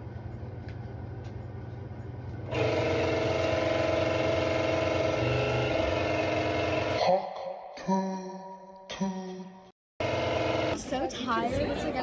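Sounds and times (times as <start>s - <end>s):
machine whirring: 2.4s - 7.0s, 10.0s - 11.0s.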